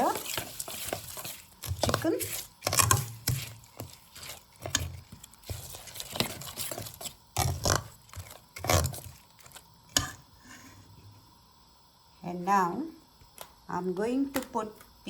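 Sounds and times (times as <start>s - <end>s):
thick marinade mixed in bowl: 0.0s - 10.2s.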